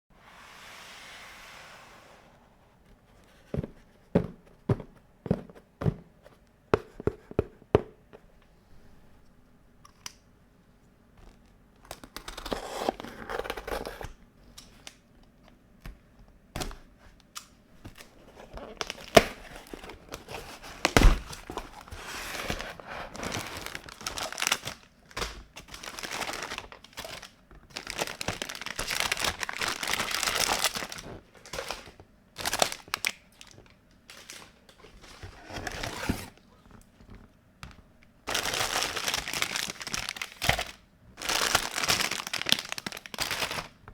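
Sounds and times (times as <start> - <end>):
plastic packaging crinkling and tearing: 17.9 - 36.8, 38.3 - 43.9.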